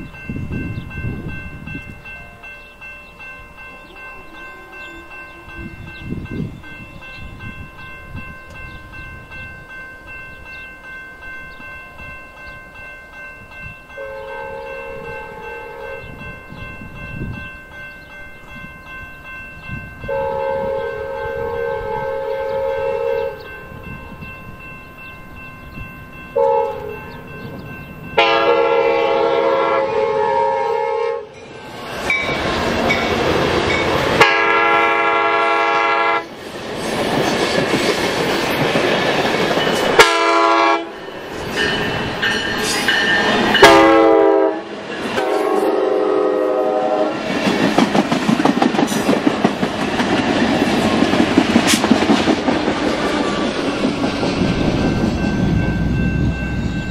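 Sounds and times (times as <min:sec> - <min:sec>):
train horn blasts: 0:03.9 - 0:05.9, 0:13.9 - 0:16.2, 0:20.0 - 0:23.5, 0:26.4 - 0:27.1, 0:28.2 - 0:31.4, 0:34.2 - 0:36.3, 0:40.0 - 0:41.0, 0:43.6 - 0:47.2
train cars clacking on rails: 0:31.9 - 0:56.9.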